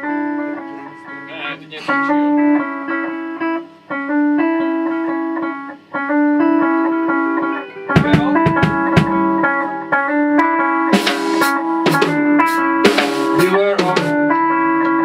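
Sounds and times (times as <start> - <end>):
electric guitar strumming chords: 0.0 - 15.0
sharp drum hits: 7.9 - 9.8, 10.8 - 14.2.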